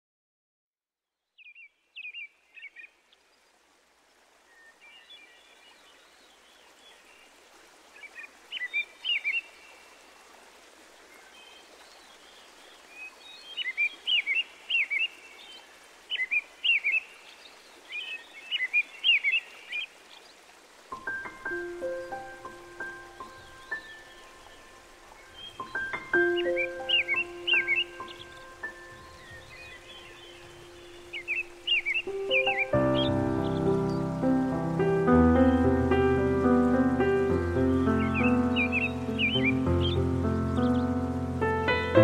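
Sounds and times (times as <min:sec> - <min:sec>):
bird song chirps: 0:01.2 - 0:03.6, 0:11.1 - 0:20.4, 0:21.0 - 0:42.0.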